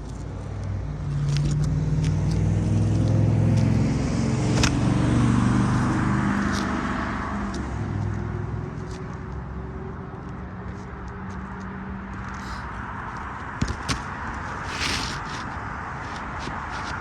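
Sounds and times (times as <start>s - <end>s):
vehicle engine passing: 0.7s - 13.2s.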